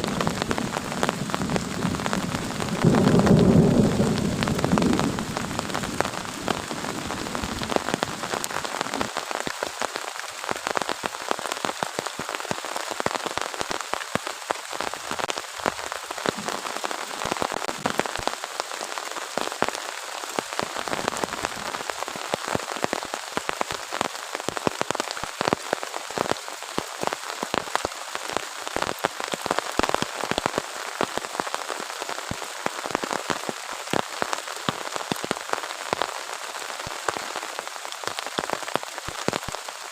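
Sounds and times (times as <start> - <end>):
low thunder rumble: 0.0 - 7.8
heavy rain falling: 0.0 - 39.9.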